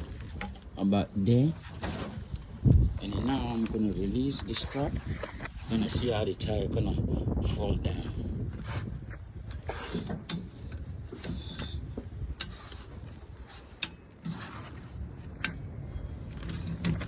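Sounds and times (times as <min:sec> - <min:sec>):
low background rumble: 0:00.0 - 0:17.0
sharp clicks and knocks: 0:09.5 - 0:15.7, 0:16.3 - 0:17.0.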